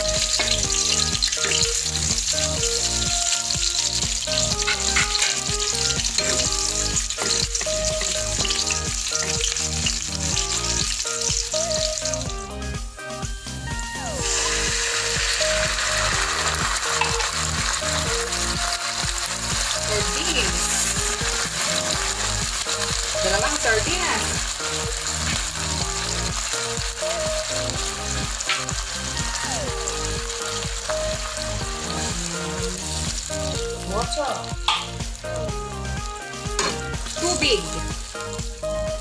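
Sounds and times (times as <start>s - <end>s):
fish frying in hot oil: 0.0s - 39.0s.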